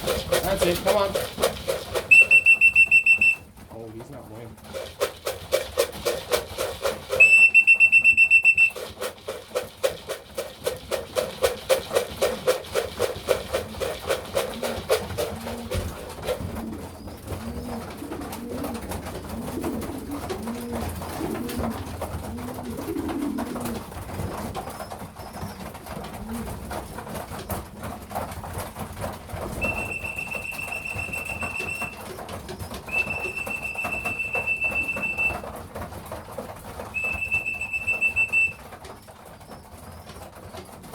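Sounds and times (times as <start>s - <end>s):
fast even pattering: 0.0s - 40.9s
whistle long blasts: 2.1s - 3.4s, 7.1s - 8.9s, 29.6s - 32.0s, 32.9s - 35.4s, 37.0s - 38.6s
pigeons cooing: 4.6s - 27.7s, 29.6s - 35.9s.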